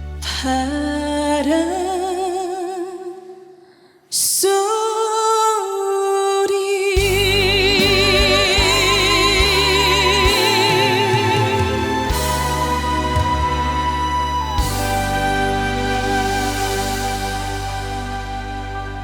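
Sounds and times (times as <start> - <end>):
woman singing with vibrato: 4.1 - 19.0
band accompaniment: 7.0 - 19.0.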